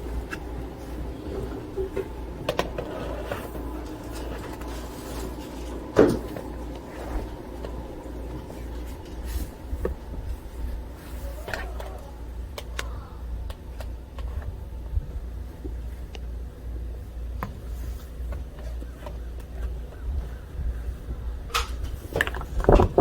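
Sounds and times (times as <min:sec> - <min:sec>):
steady low rumble: 0:00.0 - 0:23.0
knocks and clunks: 0:21.6 - 0:23.0.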